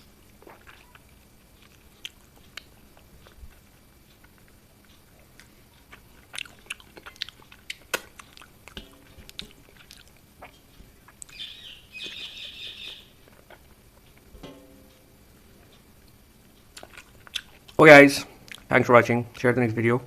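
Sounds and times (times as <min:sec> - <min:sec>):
eating clicks and smacks: 0:00.3 - 0:11.4, 0:16.5 - 0:17.8, 0:18.4 - 0:18.7
bird twittering: 0:11.3 - 0:13.2.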